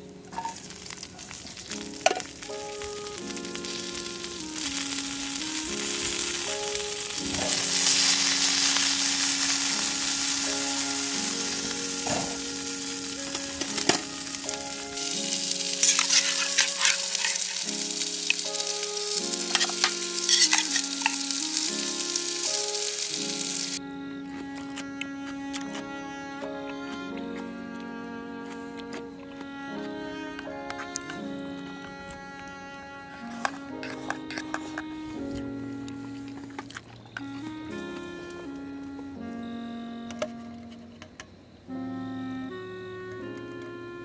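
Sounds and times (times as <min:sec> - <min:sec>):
slow background melody: 0:00.0 - 0:44.0
food sizzling in a pan: 0:00.3 - 0:23.8.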